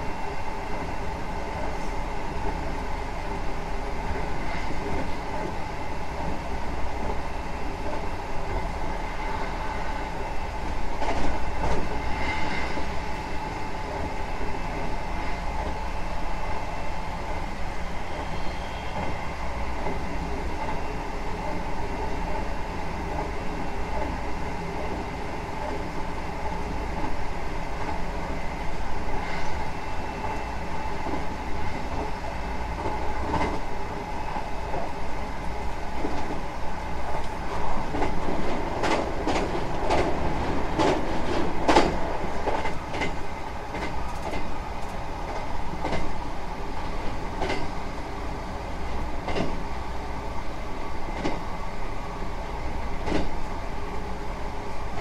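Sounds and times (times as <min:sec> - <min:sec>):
train wheels rumbling on rail: 0:00.0 - 0:55.0
train whine: 0:00.0 - 0:55.0.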